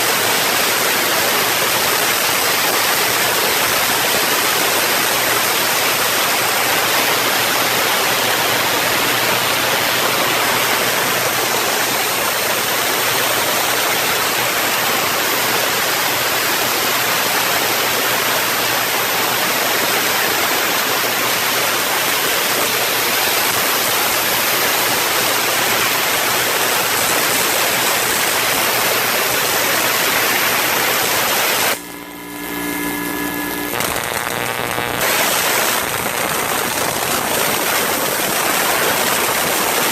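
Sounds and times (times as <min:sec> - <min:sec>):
loud rushing like heavy rain: 0:00.0 - 0:31.8, 0:33.7 - 0:39.9
low steady hum: 0:31.8 - 0:37.4.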